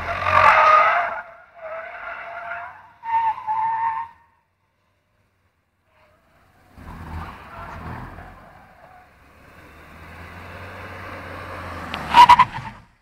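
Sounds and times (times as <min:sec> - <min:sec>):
car engine humming: 0:05.0 - 0:13.0.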